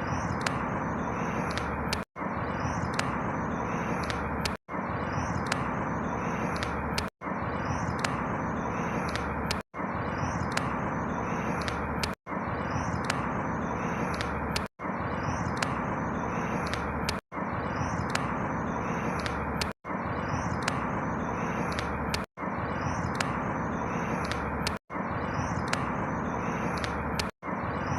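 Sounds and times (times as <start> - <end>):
small bird chirps: 0.0 - 27.9.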